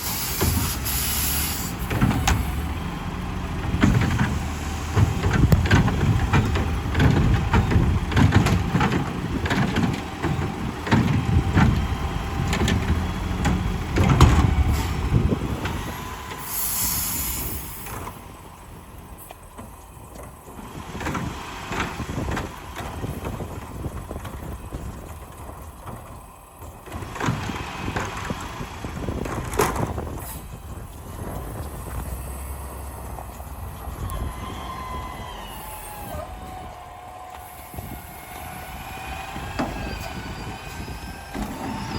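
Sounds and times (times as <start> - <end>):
air brake hiss: 0.0 - 1.9, 16.4 - 18.0
garbage truck engine: 0.0 - 41.9.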